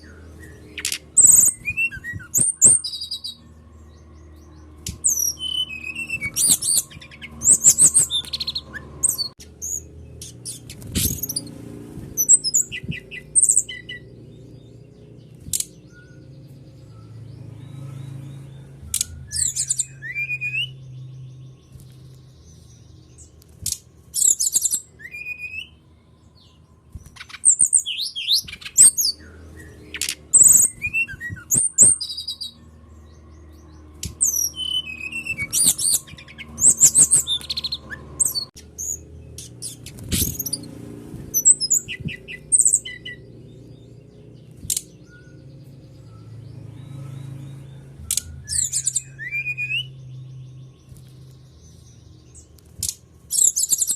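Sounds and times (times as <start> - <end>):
bird song with chirps and trills: 0.0 - 53.9.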